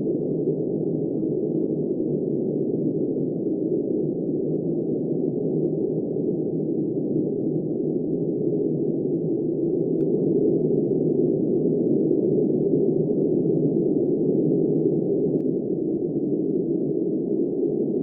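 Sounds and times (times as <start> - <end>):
muffled deep wind: 0.0 - 18.0.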